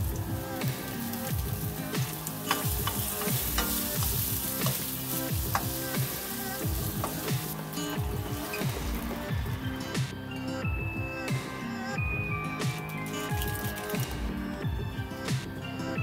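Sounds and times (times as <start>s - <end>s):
food sizzling in frying pan: 0.0s - 9.7s, 12.8s - 14.3s
wooden spoon scraping pan: 2.2s - 9.3s.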